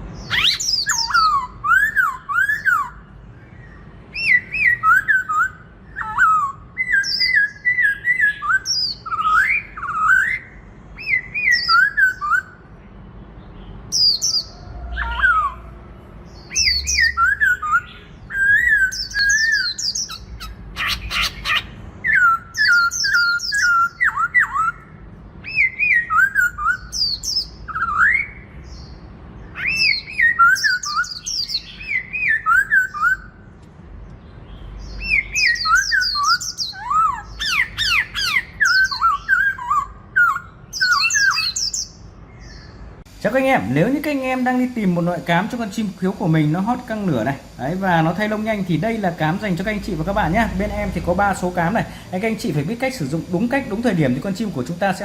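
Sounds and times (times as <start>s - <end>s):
bird whistling song: 0.2s - 12.7s, 13.6s - 33.4s, 34.4s - 42.8s.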